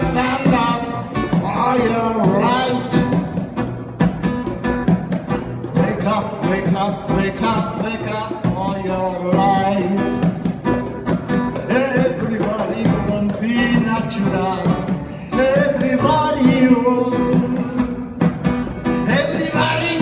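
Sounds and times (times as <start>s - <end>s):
person singing: 0.0s - 3.1s, 11.6s - 20.0s
acoustic guitar playing: 0.0s - 20.0s.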